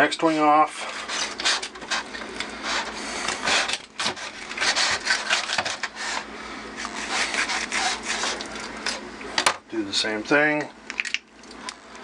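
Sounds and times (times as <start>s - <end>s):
knife sawing through chicken: 0.2s - 8.5s
blade scraping cutting board: 0.2s - 9.1s.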